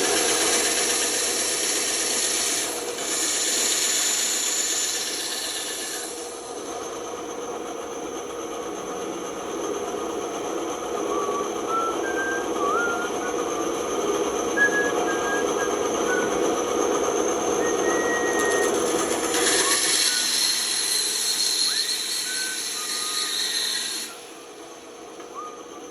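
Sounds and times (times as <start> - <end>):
band saw cutting wood: 0.0 - 6.6, 12.1 - 24.6
high squeaks: 17.6 - 24.2.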